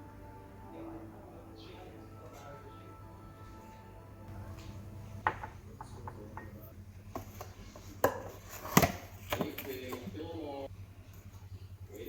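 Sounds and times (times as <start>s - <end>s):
dishes knocking and clinking: 4.3s - 10.5s.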